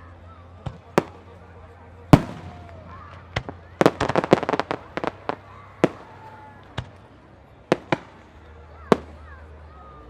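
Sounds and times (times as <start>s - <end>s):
fireworks bursting: 2.1s - 7.0s, 7.7s - 9.3s.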